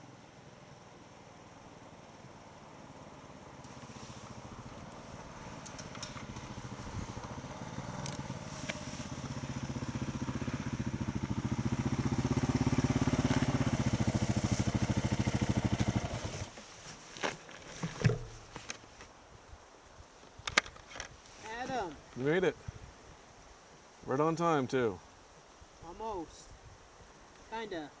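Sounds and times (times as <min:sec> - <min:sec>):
motorcycle engine approaching: 0:00.7 - 0:16.5.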